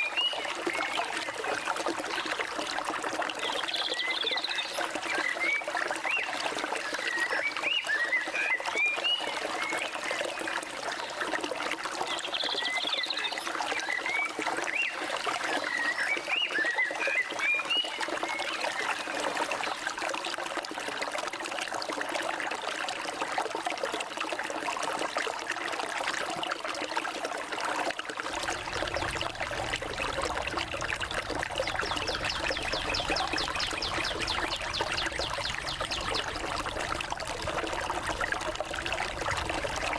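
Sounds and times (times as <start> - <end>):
stream water running: 0.0 - 39.9
birds chirping and trilling: 28.4 - 37.1.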